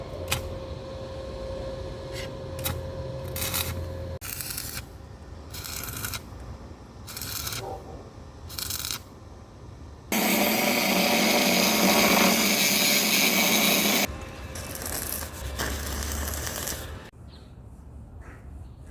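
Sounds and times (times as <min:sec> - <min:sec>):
electric arc welding noise: 0:02.6 - 0:07.7, 0:08.4 - 0:09.2, 0:10.1 - 0:17.1.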